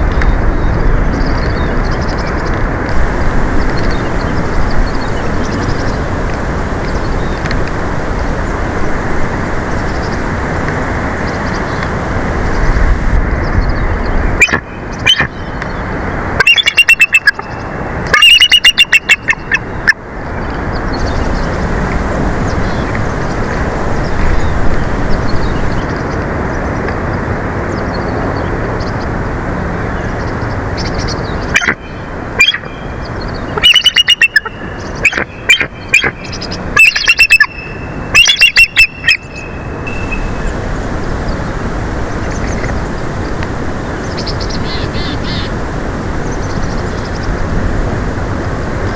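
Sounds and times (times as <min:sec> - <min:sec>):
wind noise on microphone: 0:00.0 - 0:31.6, 0:36.1 - 0:48.9
eagle calling: 0:18.2 - 0:19.7, 0:33.6 - 0:40.5, 0:44.1 - 0:45.6.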